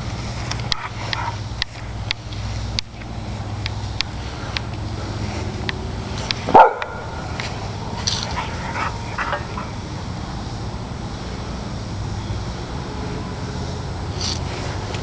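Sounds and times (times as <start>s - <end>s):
dog barking: 6.5s - 7.2s, 8.3s - 9.7s
dog yelping and whining: 8.2s - 9.7s.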